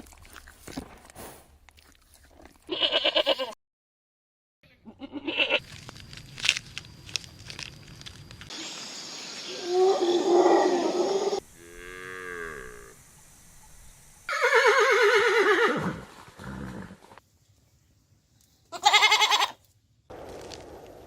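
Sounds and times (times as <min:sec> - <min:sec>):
goats bleating: 0:02.7 - 0:03.6, 0:04.9 - 0:05.6, 0:18.7 - 0:19.6.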